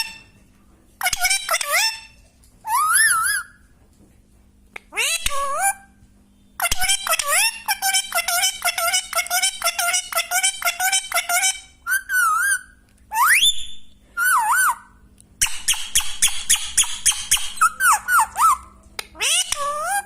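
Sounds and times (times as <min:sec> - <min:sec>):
parrot chirps: 0:01.0 - 0:03.6, 0:04.8 - 0:05.9, 0:06.6 - 0:20.0
parrot whistling: 0:02.7 - 0:03.6, 0:11.8 - 0:20.0.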